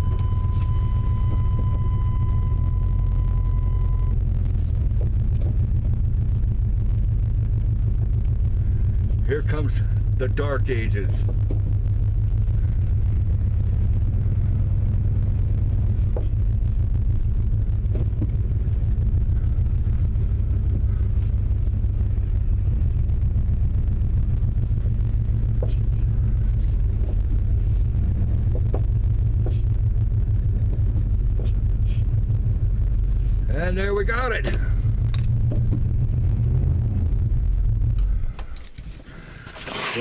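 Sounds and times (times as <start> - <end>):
truck engine rumbling: 0.0 - 40.0.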